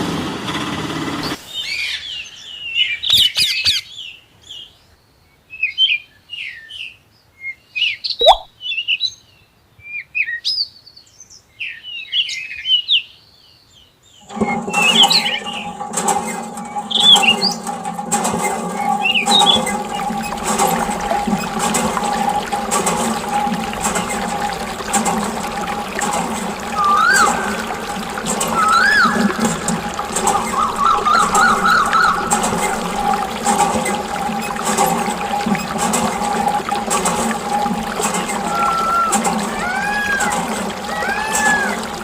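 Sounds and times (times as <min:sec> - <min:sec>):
birds chirping: 0:08.2 - 0:08.5, 0:18.8 - 0:42.0
small motor running: 0:14.3 - 0:42.0.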